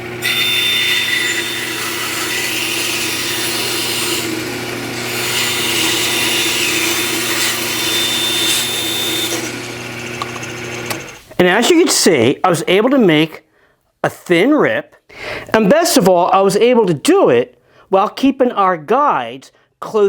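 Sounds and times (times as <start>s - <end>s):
bandsaw motor hum: 0.0s - 11.3s
saw blade cutting wood: 0.0s - 11.4s.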